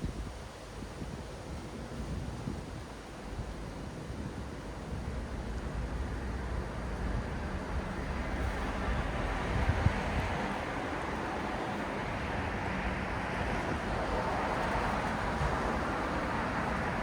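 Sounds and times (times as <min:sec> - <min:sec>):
road traffic rumble: 0:05.0 - 0:17.0.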